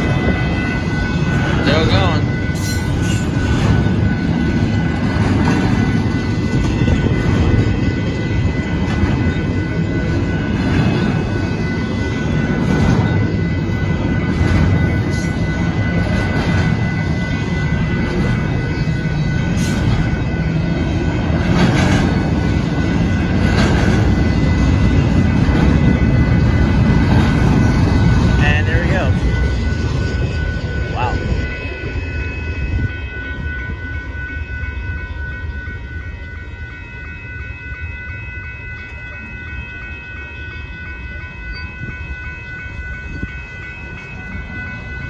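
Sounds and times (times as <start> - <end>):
freight train rumble: 0.0 - 45.0
high-pitched tone: 0.0 - 45.0
wheels clacking over rail joints: 17.8 - 28.4.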